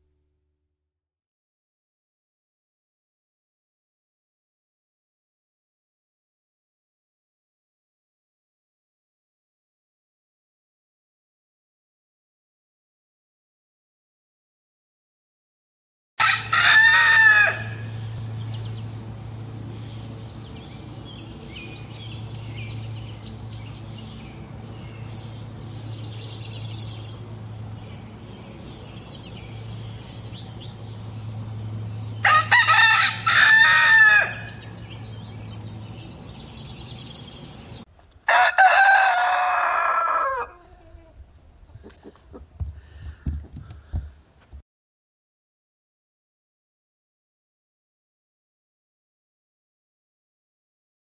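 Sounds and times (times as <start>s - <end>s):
roosters crowing: 16.2s - 18.3s, 31.0s - 35.4s, 38.3s - 41.2s
steady low hum: 17.6s - 33.6s, 34.3s - 38.2s
small birds chirping: 17.9s - 32.3s, 34.4s - 37.9s.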